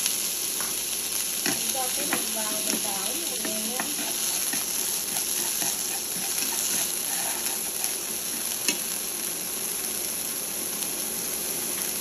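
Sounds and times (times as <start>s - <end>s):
shallots sizzling in hot oil: 0.0s - 12.0s
chopsticks clicking on pan: 1.4s - 6.8s, 8.6s - 8.8s.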